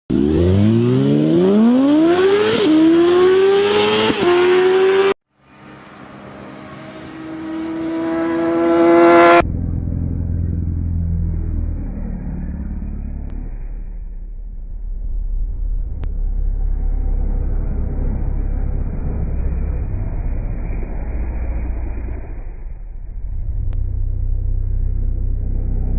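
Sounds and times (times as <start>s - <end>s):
motorcycle passing: 0.1s - 13.8s, 16.1s - 25.9s
motorcycle engine accelerating: 0.1s - 25.9s
low engine rumble: 5.4s - 25.9s.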